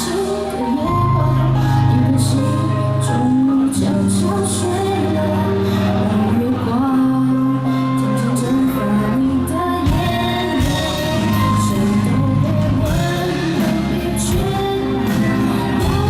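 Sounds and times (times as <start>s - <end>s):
person singing: 0.0s - 16.0s
live rock band playing: 7.3s - 16.0s.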